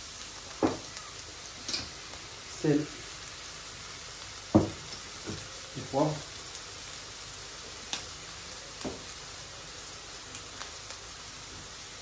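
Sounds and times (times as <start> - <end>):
onions sizzling in a wok: 0.0 - 12.0.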